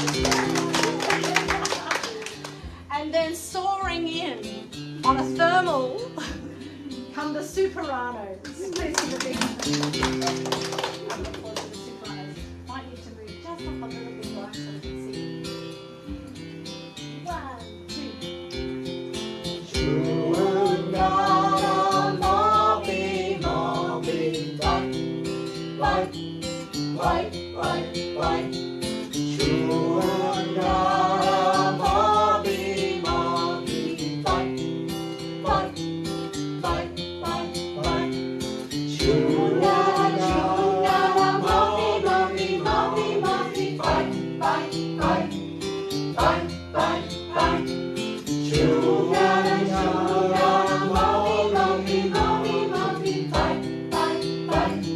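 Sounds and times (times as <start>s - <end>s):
instrumental accompaniment: 0.0s - 54.9s
choir singing a chant: 19.8s - 25.0s, 27.0s - 28.6s, 29.4s - 34.6s, 36.6s - 38.1s, 39.0s - 45.4s, 46.2s - 47.8s, 48.5s - 54.9s.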